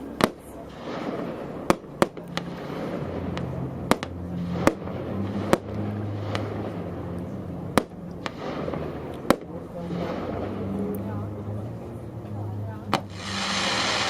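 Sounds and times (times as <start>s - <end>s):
fireworks bangs: 0.0s - 6.9s, 7.7s - 10.8s, 12.9s - 14.0s
low steady hum: 0.0s - 14.0s.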